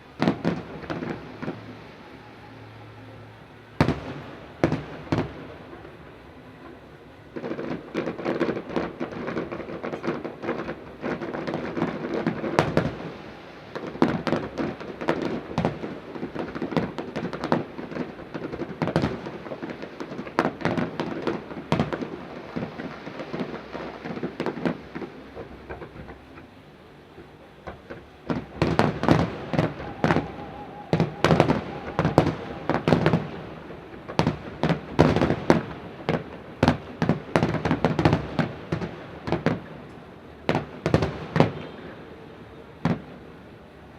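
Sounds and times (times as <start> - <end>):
fireworks bursts and crackling bangs: 0.0 - 43.9.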